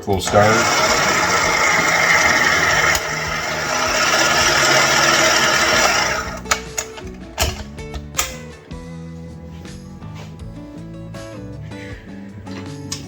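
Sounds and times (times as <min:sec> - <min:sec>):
kitchen mixer motor running: 0:00.0 - 0:06.6
background music: 0:00.0 - 0:13.0.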